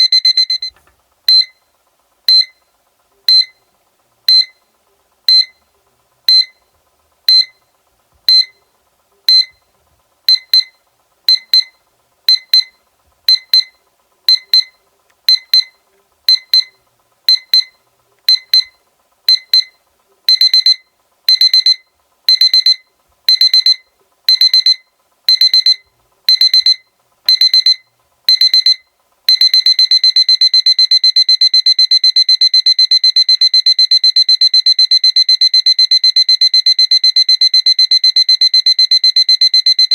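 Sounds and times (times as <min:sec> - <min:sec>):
alarm clock beeping: 0:00.0 - 0:00.7, 0:05.3 - 0:05.6, 0:06.3 - 0:06.6, 0:16.3 - 0:16.7, 0:19.3 - 0:39.9.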